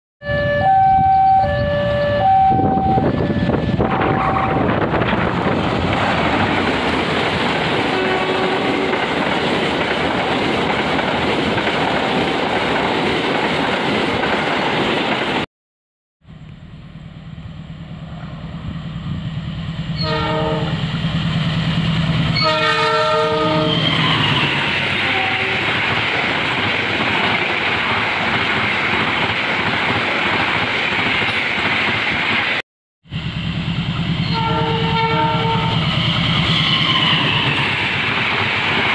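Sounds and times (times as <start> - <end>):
locomotive horn blasts: 0.2 - 4.7, 7.9 - 8.9, 20.0 - 20.8, 22.4 - 23.8, 25.0 - 25.6, 34.2 - 35.8
train wheel and rail noise: 0.3 - 15.5, 16.4 - 38.9.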